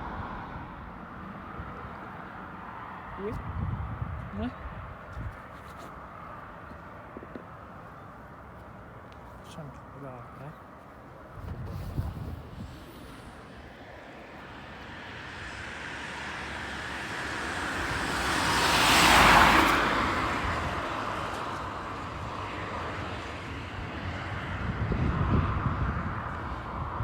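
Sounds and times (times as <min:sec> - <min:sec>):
jet airliner passing: 0:11.6 - 0:27.0.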